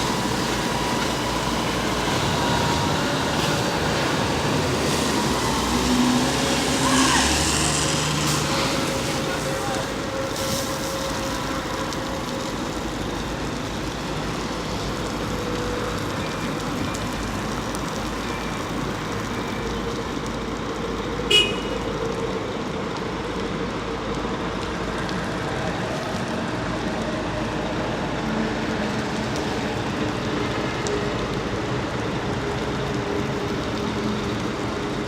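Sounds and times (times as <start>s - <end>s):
fire truck engine running: 0.0s - 35.0s.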